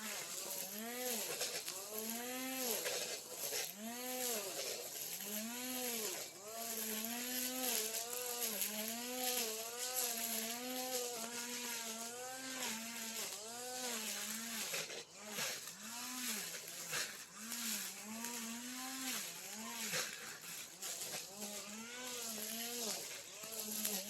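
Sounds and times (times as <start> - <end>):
brush cutter engine running: 0.0 - 24.0.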